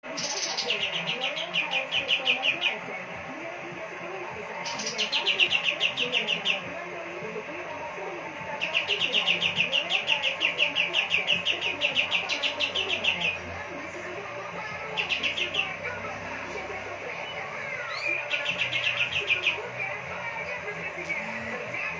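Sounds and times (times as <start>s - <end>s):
songbird singing fast high notes: 8.6s - 13.6s.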